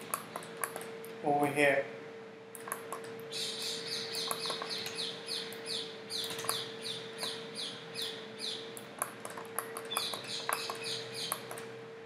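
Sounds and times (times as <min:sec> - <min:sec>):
steady hum: 0:00.0 - 0:12.0
sharp clicks: 0:02.5 - 0:07.4, 0:08.8 - 0:11.7
bird chirping: 0:03.3 - 0:08.8, 0:09.7 - 0:11.6.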